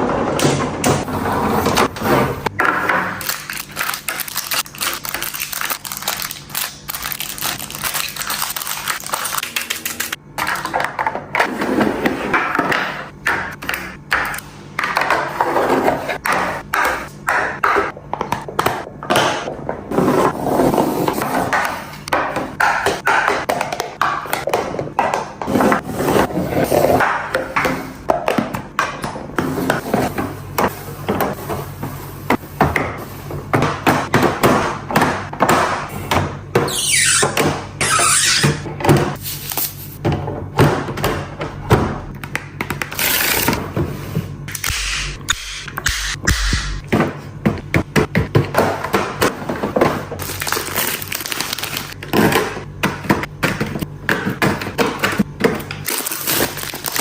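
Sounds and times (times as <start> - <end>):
packaging rustling: 50.2 - 52.0.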